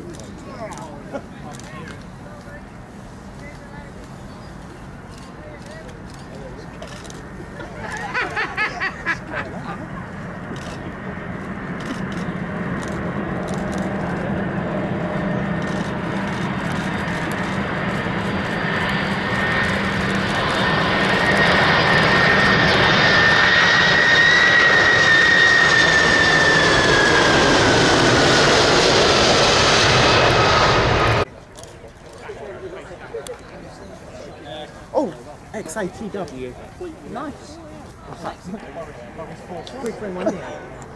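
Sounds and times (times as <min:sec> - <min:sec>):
jet airliner flying past: 0:00.0 - 0:34.7.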